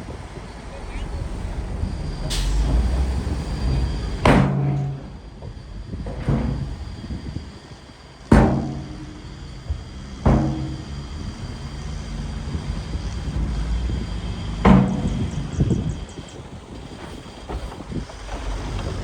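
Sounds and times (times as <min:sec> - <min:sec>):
deep booming hits: 0:00.0 - 0:07.2
heavy machinery rumbling: 0:00.0 - 0:19.0.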